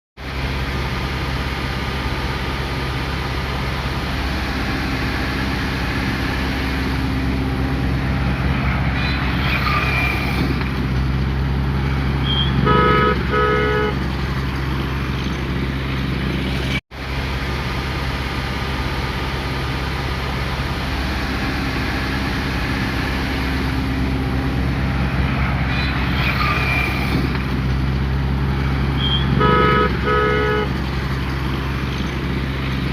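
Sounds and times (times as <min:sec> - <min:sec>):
diesel engine droning: 0:00.2 - 0:32.9
car horn toots: 0:12.2 - 0:14.1, 0:28.9 - 0:30.9.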